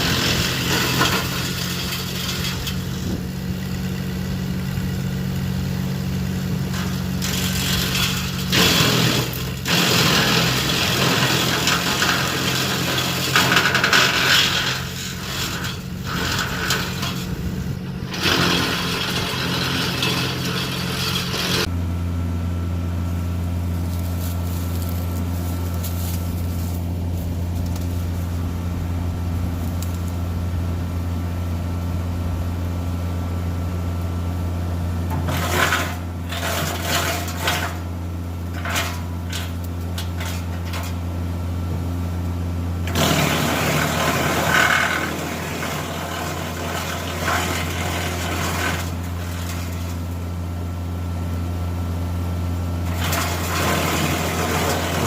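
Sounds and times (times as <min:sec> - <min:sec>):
wood chipper spinning empty: 0:00.0 - 0:21.8, 0:34.8 - 0:55.0
tractor engine hum: 0:00.0 - 0:55.0
wood chipper chipping wood: 0:00.0 - 0:55.0.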